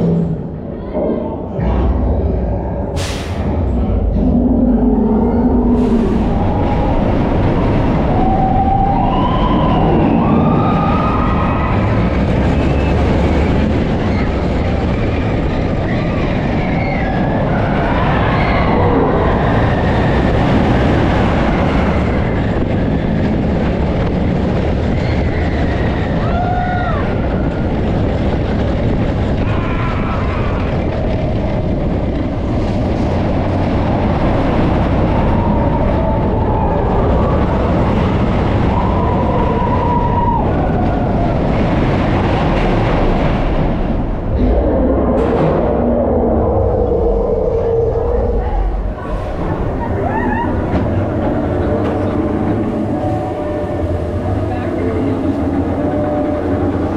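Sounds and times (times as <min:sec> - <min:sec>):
roller coaster rumbling on track: 0:00.0 - 0:56.9
wheels squealing: 0:05.1 - 0:47.1, 0:47.9 - 0:56.9.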